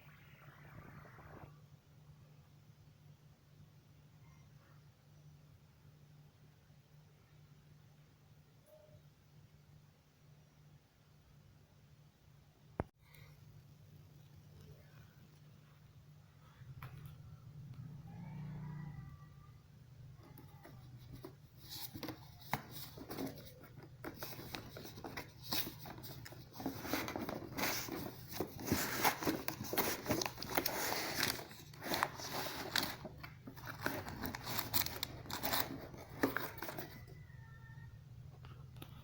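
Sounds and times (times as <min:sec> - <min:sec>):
packaging rustling and tearing: 0:21.0 - 0:37.1.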